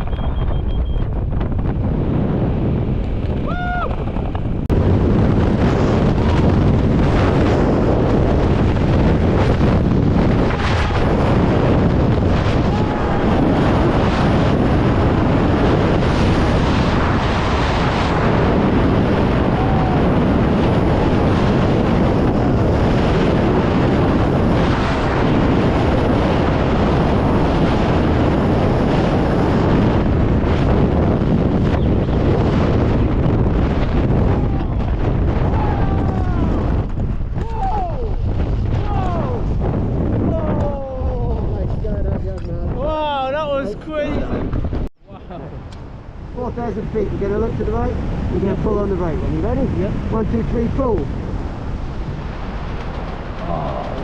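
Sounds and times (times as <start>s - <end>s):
wind roar buffeting microphone: 0.0s - 54.0s.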